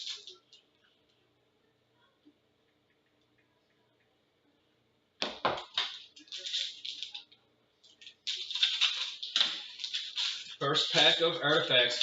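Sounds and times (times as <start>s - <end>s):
card packaging tearing and crinkling: 0.0s - 0.4s, 5.7s - 7.2s, 8.0s - 12.0s.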